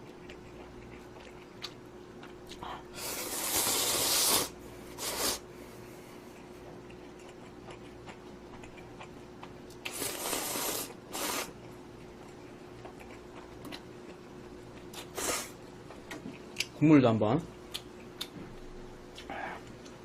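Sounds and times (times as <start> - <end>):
person slurping noodles: 3.0 - 5.4, 9.9 - 11.5, 15.1 - 15.6.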